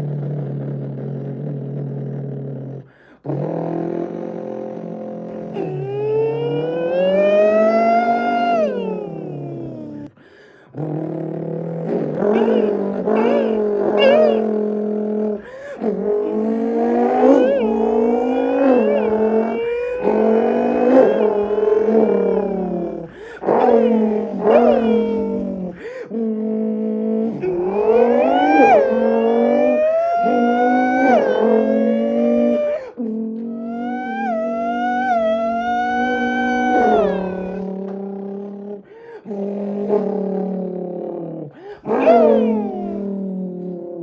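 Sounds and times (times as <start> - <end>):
man vocally imitating an engine revving: 10.8 - 32.7.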